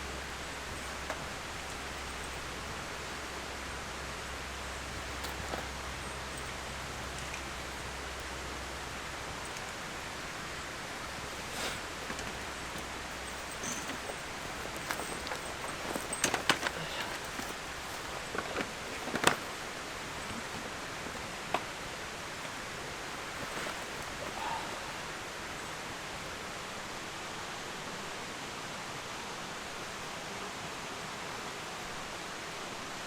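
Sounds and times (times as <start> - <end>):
rustles: 0.0 - 26.0
outdoor hiss: 0.0 - 33.0.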